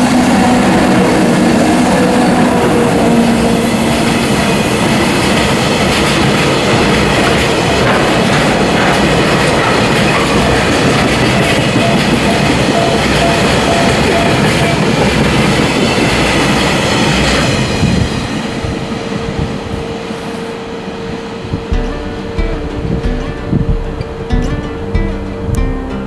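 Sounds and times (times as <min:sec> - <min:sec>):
steady hum: 0:00.0 - 0:05.2, 0:21.5 - 0:26.0
freight train wheels clacking: 0:00.0 - 0:20.2, 0:21.6 - 0:26.0.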